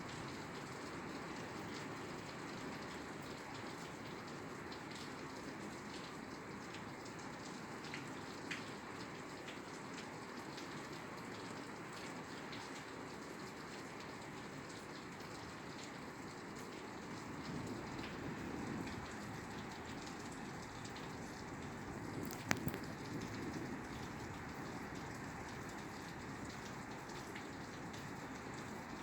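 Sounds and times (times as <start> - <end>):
rain on a roof: 0.0 - 29.0
raindrops ticking: 14.7 - 29.0.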